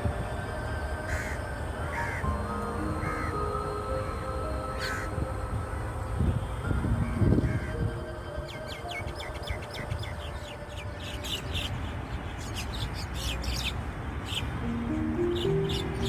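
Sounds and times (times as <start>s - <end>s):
small birds chirping: 5.7s - 16.0s.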